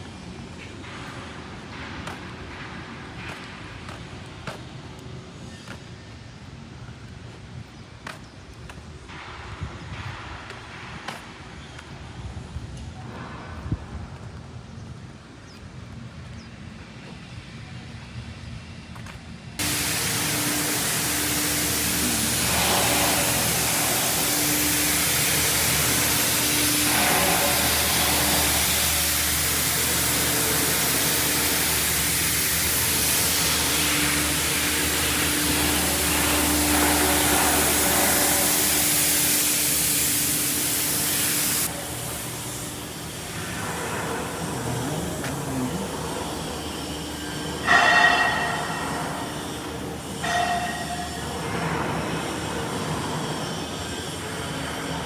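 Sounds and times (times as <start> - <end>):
compressed air hissing: 19.6 - 55.0
steady hum: 19.6 - 55.0.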